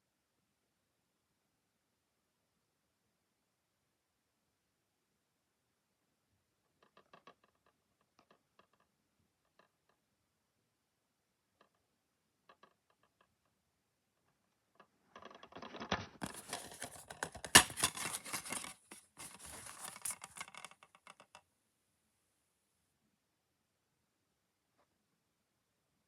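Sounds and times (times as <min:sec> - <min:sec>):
plastic crackling and scratching: 0:15.0 - 0:21.4
plastic case clicks: 0:15.7 - 0:20.7.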